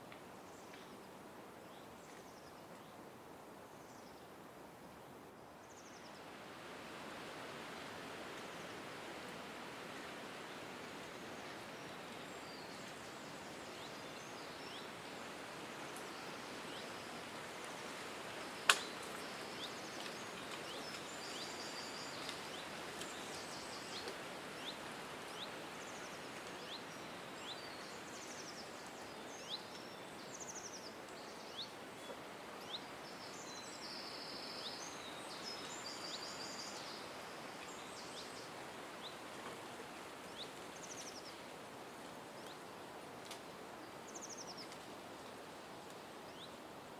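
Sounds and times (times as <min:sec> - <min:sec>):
steady background hiss: 0:00.0 - 0:46.9.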